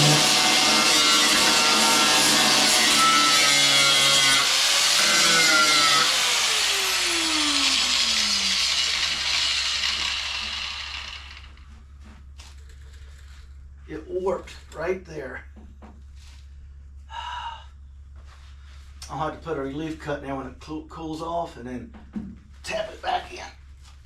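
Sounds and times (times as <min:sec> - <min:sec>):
power grinder on steel: 0:00.0 - 0:11.6.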